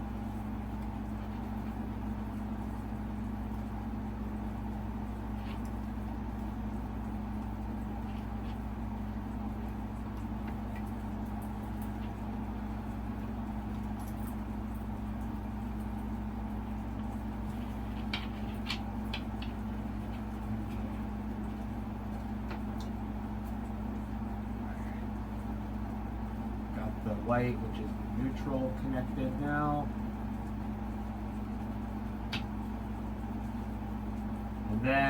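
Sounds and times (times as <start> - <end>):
low electrical hum: 0.0 - 35.0
clicks of wires being handled: 16.9 - 23.7, 32.2 - 32.6.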